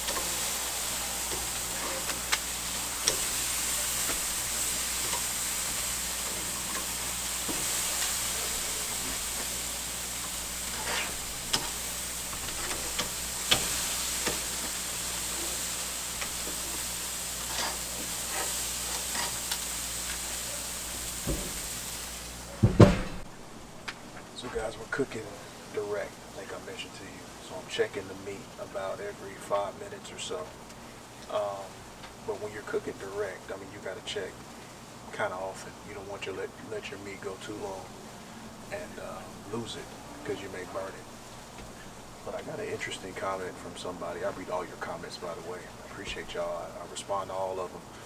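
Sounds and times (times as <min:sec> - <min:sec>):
fat crackling and popping: 0:00.0 - 0:48.0
meat sizzling over charcoal: 0:00.0 - 0:48.0.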